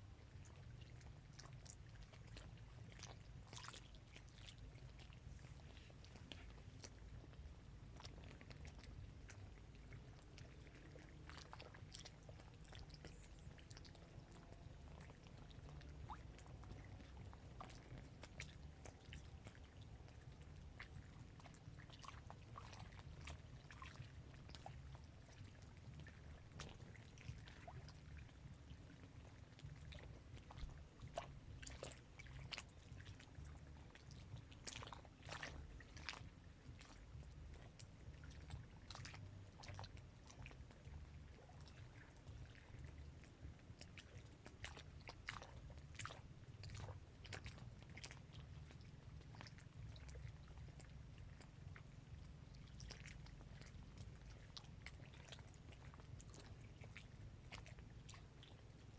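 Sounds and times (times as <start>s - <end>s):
low steady rumble: 0.0s - 58.9s
small waves lapping: 0.0s - 58.9s.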